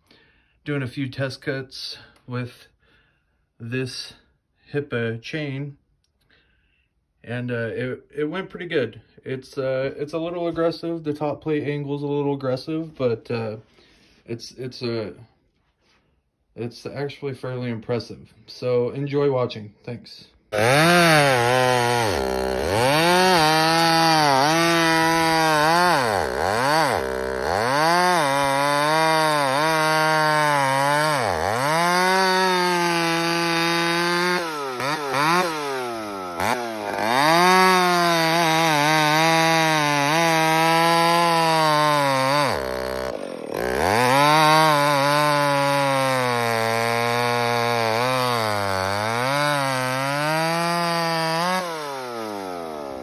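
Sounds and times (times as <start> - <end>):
chainsaw cutting wood: 20.5 - 53.0.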